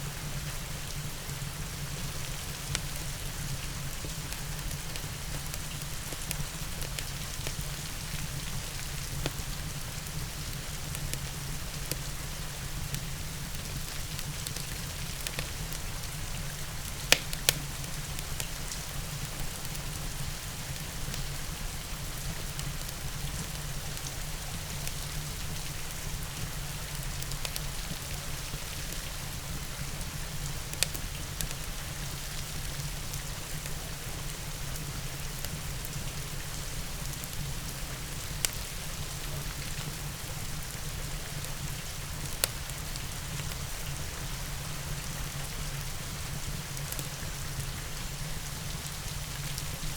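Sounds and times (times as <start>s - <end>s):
steady rain falling: 0.0s - 49.9s
wood fire popping: 13.8s - 18.5s.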